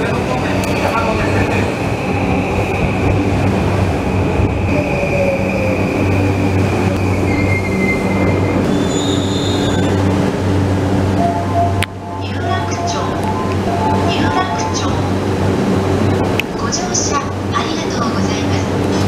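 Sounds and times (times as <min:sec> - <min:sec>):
train running rumble: 0:00.0 - 0:19.0
high brake squeal: 0:05.0 - 0:10.0.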